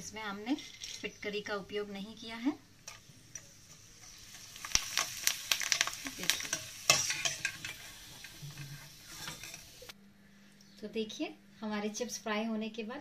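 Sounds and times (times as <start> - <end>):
chips sizzling in hot oil: 0.3 - 9.9
steel spoon clinking on pan: 6.4 - 7.8.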